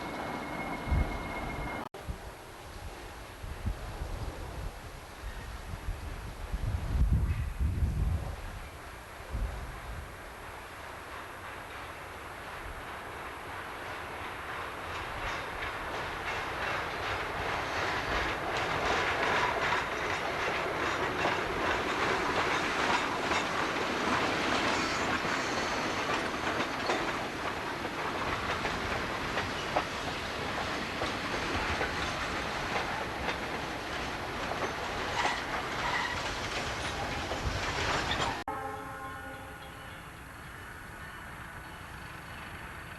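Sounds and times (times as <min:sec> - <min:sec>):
freight train rolling past: 0:00.0 - 0:01.9, 0:05.3 - 0:42.9
wheels clicking over rail joints: 0:10.4 - 0:38.4.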